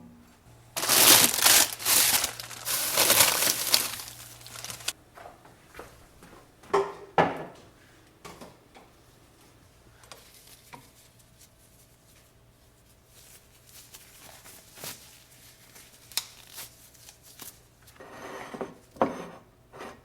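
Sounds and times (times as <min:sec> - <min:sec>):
plastic packaging crinkling: 0:00.8 - 0:05.0.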